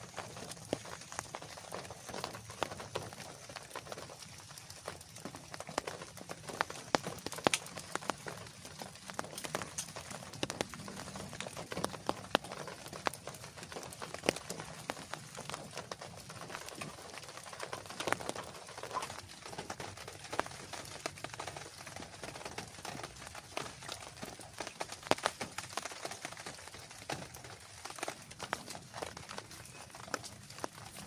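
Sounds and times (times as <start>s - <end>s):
large raindrops pattering: 0.0s - 31.0s
steady rain hiss: 0.0s - 31.0s.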